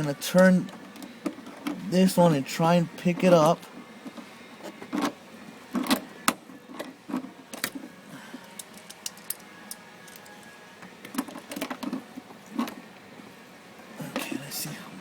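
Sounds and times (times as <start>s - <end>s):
pliers clicking and knocking: 8.4s - 10.4s.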